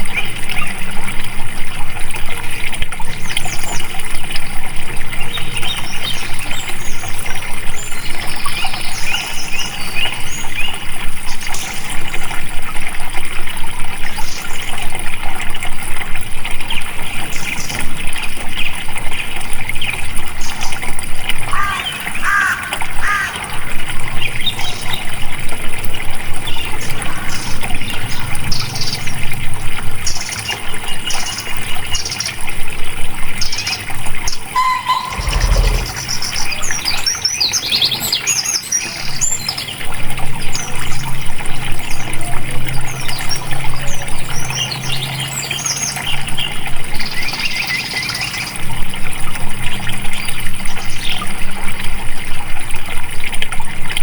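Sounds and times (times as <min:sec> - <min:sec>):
water flowing: 0:00.0 - 0:47.5
birds chirping: 0:34.4 - 0:39.8.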